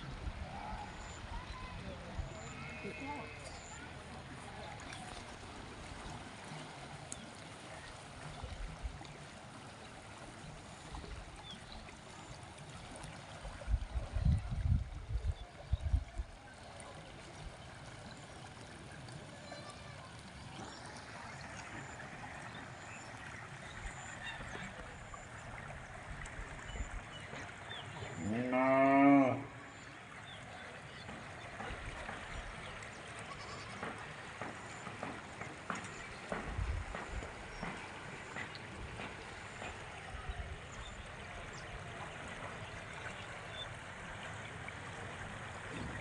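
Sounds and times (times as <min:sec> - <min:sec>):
farm animal bleating: 0:02.4 - 0:03.5, 0:33.3 - 0:33.8.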